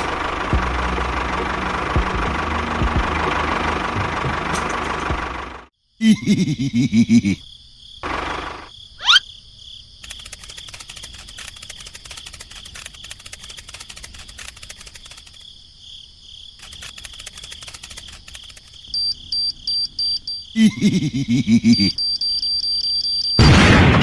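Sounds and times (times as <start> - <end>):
insects chirring: 5.7 - 23.9.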